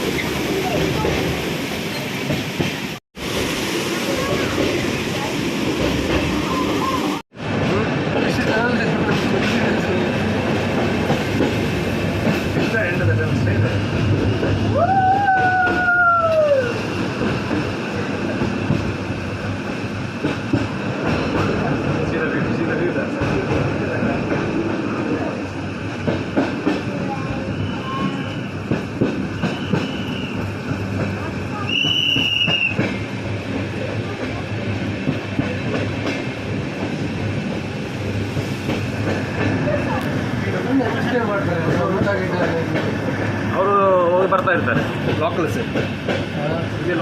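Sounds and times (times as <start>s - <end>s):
train rumble and rattle: 0.0s - 47.0s
high squeal: 27.3s - 28.6s, 29.3s - 30.6s
whistle-like tone sliding down: 31.7s - 32.8s.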